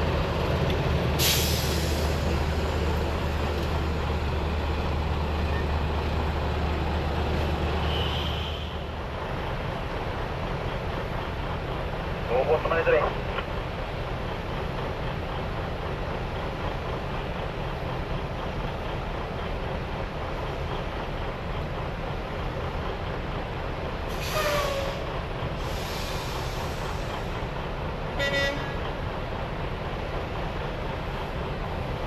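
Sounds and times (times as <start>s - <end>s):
truck engine running: 0.0s - 24.1s
truck horn toot: 7.8s - 8.8s, 28.2s - 28.8s.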